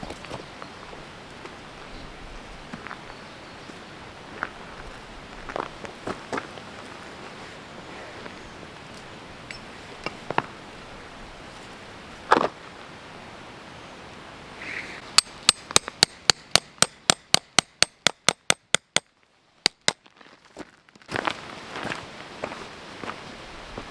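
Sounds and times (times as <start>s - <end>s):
hammer striking metal tent peg: 15.2s - 19.1s, 19.7s - 20.0s.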